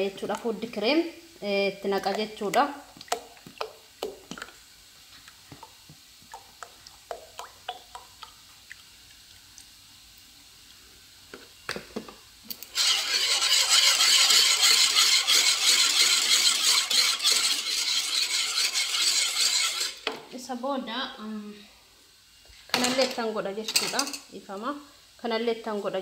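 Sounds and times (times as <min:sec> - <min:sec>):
utensil scraping cooking pan: 0:12.7 - 0:20.1.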